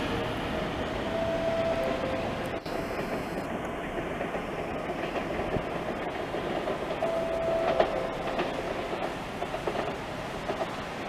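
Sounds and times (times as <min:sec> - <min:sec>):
train wheels rumbling on rail: 0:00.0 - 0:11.0
brief steady tone: 0:01.0 - 0:03.2, 0:07.0 - 0:08.4.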